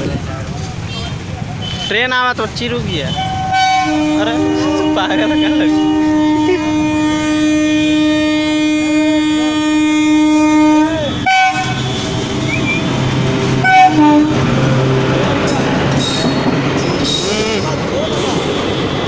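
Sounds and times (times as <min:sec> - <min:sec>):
train wheels rumbling on rails: 0:00.0 - 0:19.0
train horn blast: 0:03.1 - 0:15.2.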